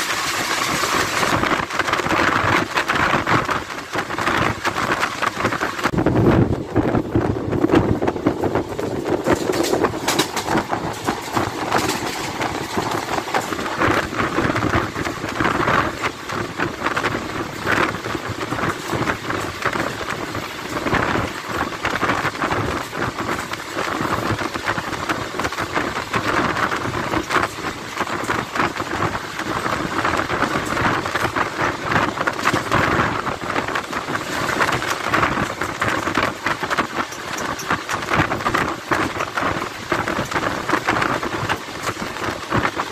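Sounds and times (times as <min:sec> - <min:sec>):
train wheels clattering on rails: 0:00.0 - 0:42.9
wind rushing past open door: 0:00.0 - 0:42.9.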